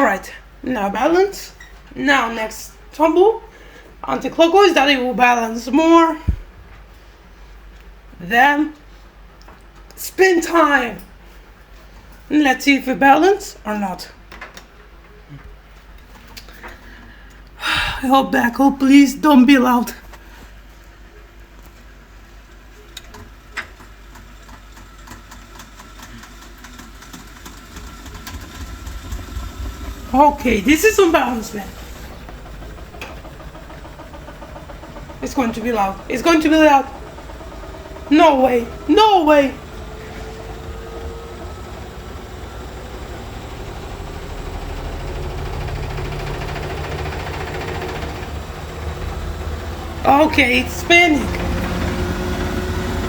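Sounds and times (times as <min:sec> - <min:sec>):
washing machine motor hum: 0:02.0 - 0:06.8, 0:22.3 - 0:53.0
low rumble of spinning drum: 0:27.5 - 0:53.0.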